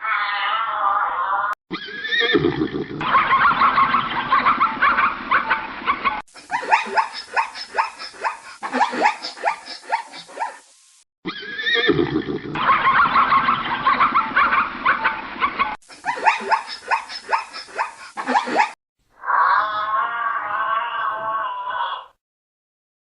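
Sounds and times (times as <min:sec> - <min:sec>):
animal calls: 0:06.4 - 0:10.7, 0:11.3 - 0:22.2.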